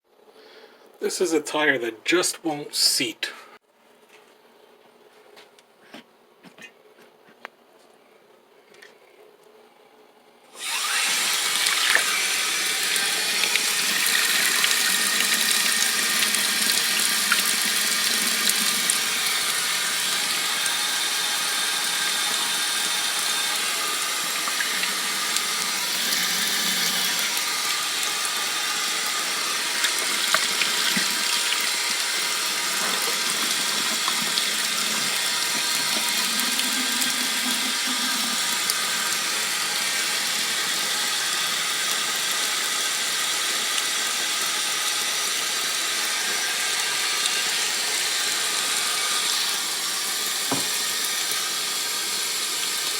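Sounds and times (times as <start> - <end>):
tap running into sink: 29.8 - 32.0, 50.5 - 51.3.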